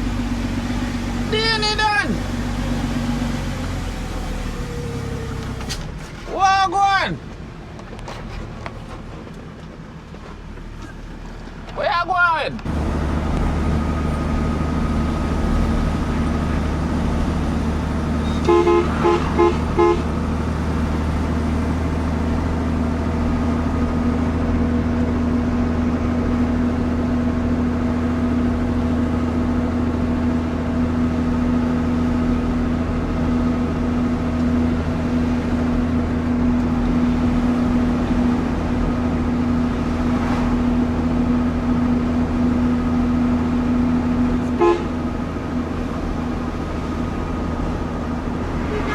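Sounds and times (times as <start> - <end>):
truck engine running: 0.0 - 11.9, 12.6 - 48.9
horn toots: 18.1 - 20.7, 44.4 - 45.1, 48.4 - 48.9.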